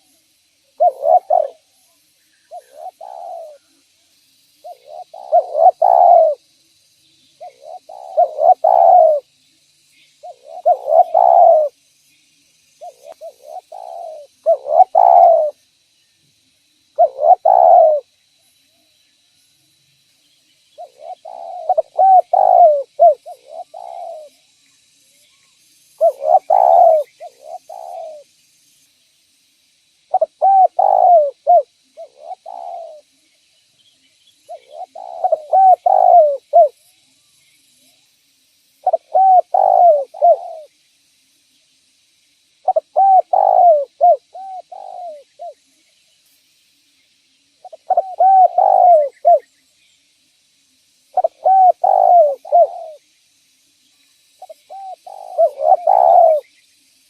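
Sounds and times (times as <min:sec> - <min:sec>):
dove cooing: 0:00.7 - 0:01.7, 0:02.5 - 0:03.6, 0:04.6 - 0:06.4, 0:07.4 - 0:09.3, 0:10.2 - 0:11.8, 0:12.8 - 0:15.6, 0:17.0 - 0:18.1, 0:20.8 - 0:24.4, 0:26.0 - 0:28.2, 0:30.1 - 0:33.1, 0:34.5 - 0:36.8, 0:38.8 - 0:40.7, 0:42.6 - 0:45.6, 0:47.6 - 0:49.5, 0:51.2 - 0:53.0, 0:54.4 - 0:56.5.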